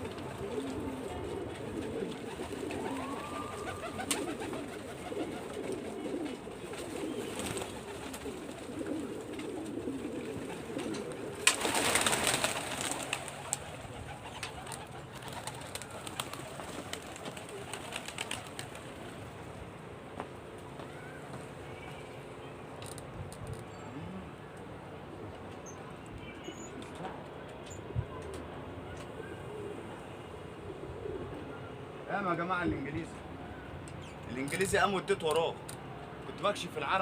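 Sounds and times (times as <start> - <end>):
pigeons cooing: 0.0 - 19.6, 27.8 - 32.0.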